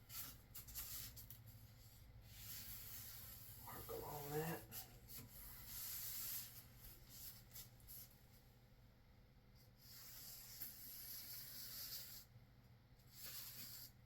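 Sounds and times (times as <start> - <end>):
marker pen rubbing on surface: 0.0 - 8.2, 9.6 - 12.3, 13.0 - 14.0.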